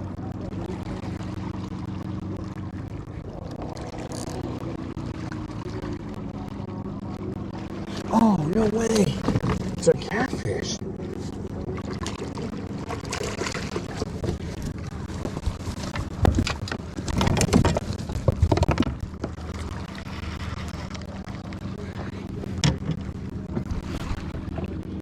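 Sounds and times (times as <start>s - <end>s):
low motor hum: 0.0s - 25.0s
wind on microphone: 12.9s - 25.0s.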